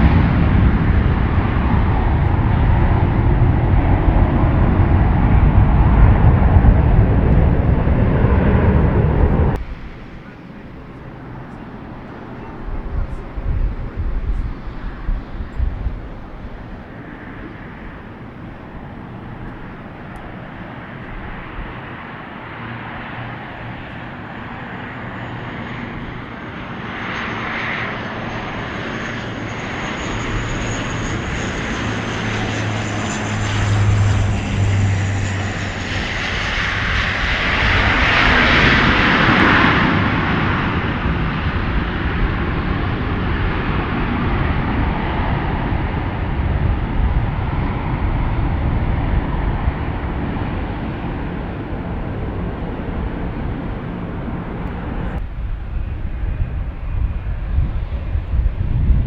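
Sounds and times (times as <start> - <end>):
airliner engines flying by: 0.0 - 59.0.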